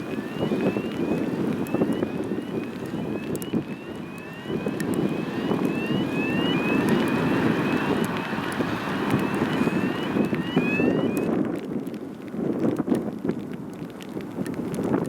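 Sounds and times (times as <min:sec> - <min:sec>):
jet engines rumbling: 0:00.0 - 0:11.4
wind buffeting microphone: 0:00.0 - 0:15.0.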